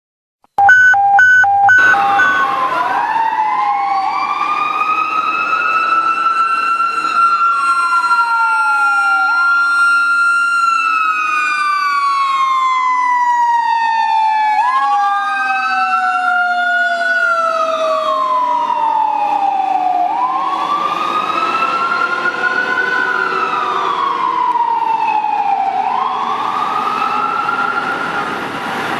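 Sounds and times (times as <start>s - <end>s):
electronic sirens wailing: 0.6s - 10.4s.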